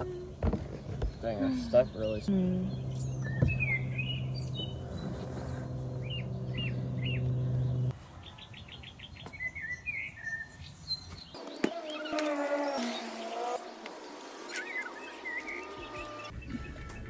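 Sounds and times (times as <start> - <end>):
small birds chirping: 0.0 - 17.0
steady low hum: 2.3 - 7.9.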